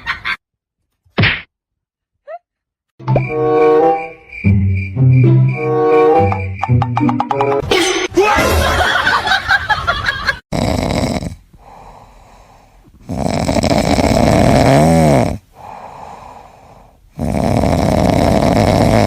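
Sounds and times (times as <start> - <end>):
pet snoring: 10.5 - 12.0, 13.0 - 16.4, 17.1 - 19.0
quiet breathing: 11.4 - 13.1, 15.4 - 17.2.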